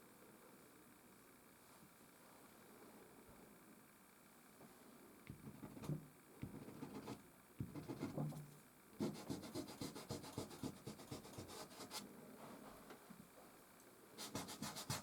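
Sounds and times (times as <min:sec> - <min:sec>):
pastel scratching on canvas: 0:05.4 - 0:08.4, 0:09.0 - 0:12.0, 0:14.2 - 0:15.0.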